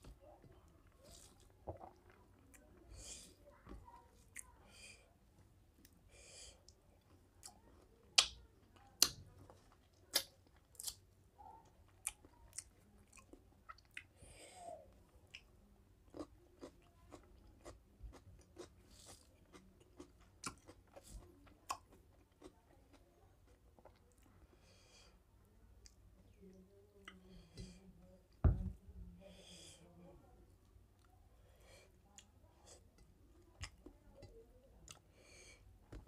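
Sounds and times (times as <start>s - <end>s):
close-miked chewing: 0.0s - 4.8s, 6.6s - 14.2s, 14.9s - 24.6s, 31.9s - 36.0s.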